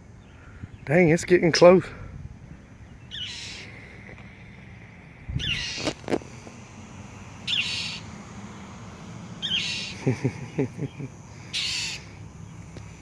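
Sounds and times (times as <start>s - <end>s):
bird harsh alarm calls: 2.6s - 8.5s, 9.3s - 12.6s.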